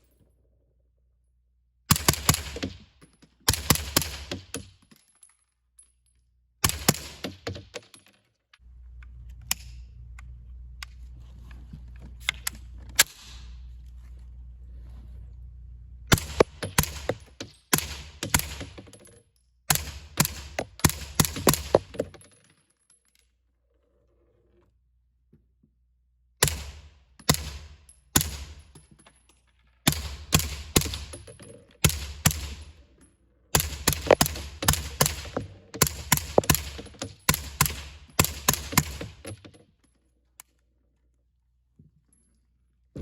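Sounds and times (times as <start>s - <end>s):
suppressed gunshots: 16.1s - 18.8s, 33.6s - 39.3s.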